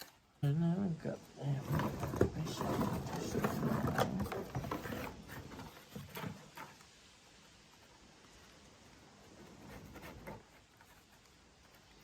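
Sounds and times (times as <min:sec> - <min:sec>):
cardboard rustling and clicking: 0:01.6 - 0:06.9.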